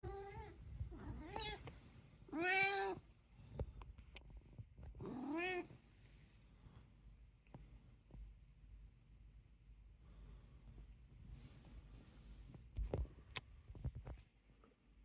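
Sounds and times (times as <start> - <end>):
cat meowing: 0.0 - 1.7, 2.3 - 3.0.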